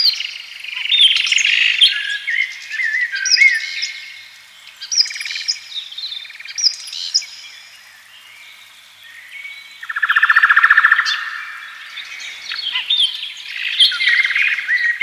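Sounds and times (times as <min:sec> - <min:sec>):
birds chirping and whistling: 0:09.2 - 0:15.0.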